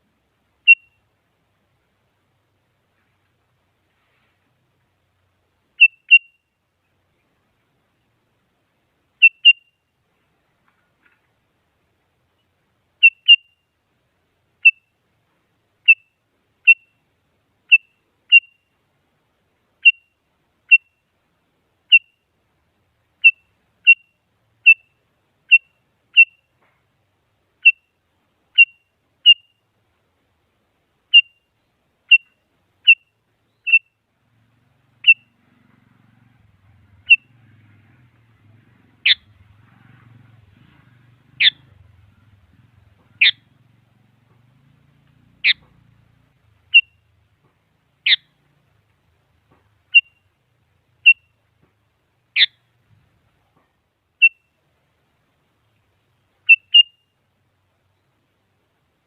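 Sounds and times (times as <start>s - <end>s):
bulbul long sweeping calls: 5.8s - 6.4s, 9.2s - 9.8s, 13.0s - 13.6s, 15.8s - 17.1s, 17.7s - 18.7s, 23.2s - 26.5s, 28.5s - 29.6s, 31.1s - 47.2s, 48.0s - 48.5s, 49.8s - 50.3s, 54.2s - 54.6s, 56.4s - 57.2s
bulbul sharp chirps: 32.1s - 34.0s, 56.5s - 57.1s.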